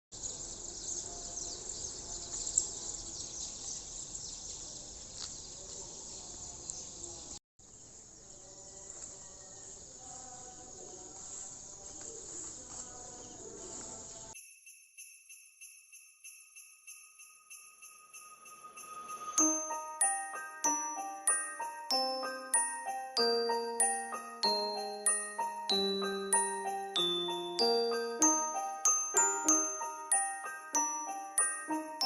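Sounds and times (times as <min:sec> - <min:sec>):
insects chirring: 0:00.2 - 0:14.4.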